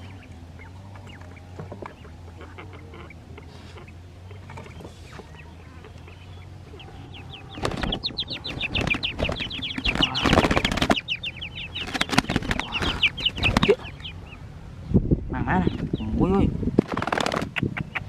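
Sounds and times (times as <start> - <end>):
small birds chirping: 0.0 - 18.0
wings flapping and rustling: 6.9 - 14.1, 16.7 - 18.0.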